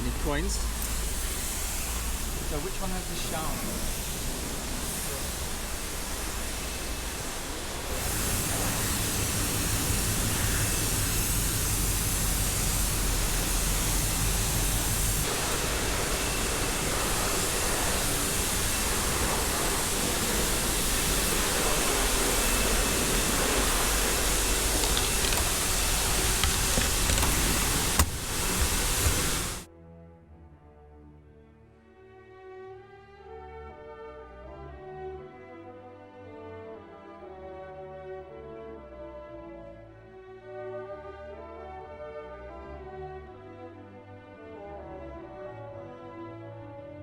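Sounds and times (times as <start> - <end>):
high-pressure water spray: 0.0 - 29.7.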